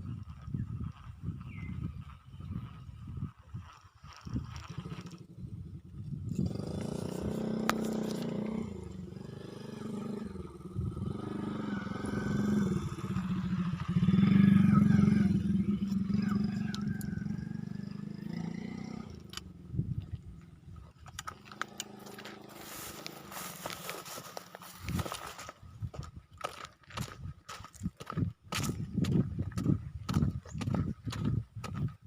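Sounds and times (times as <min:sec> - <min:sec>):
small motorcycle passing by: 0:00.5 - 0:25.4.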